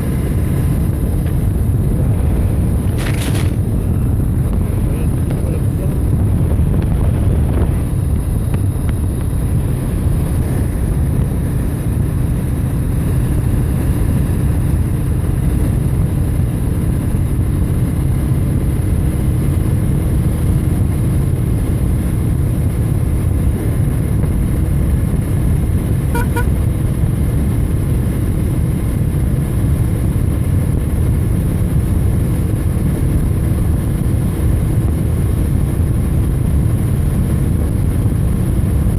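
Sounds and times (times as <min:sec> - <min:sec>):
motorcycle road and wind noise: 0:00.0 - 0:38.9
double beep: 0:26.2 - 0:26.5.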